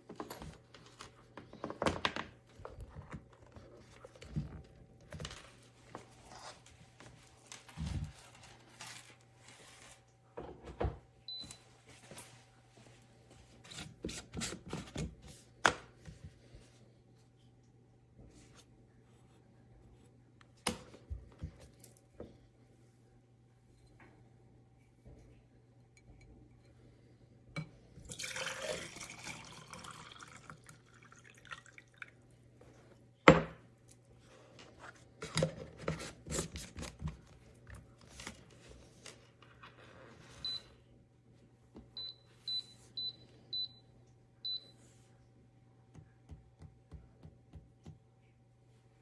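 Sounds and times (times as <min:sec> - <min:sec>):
water pouring: 0:28.1 - 0:32.2.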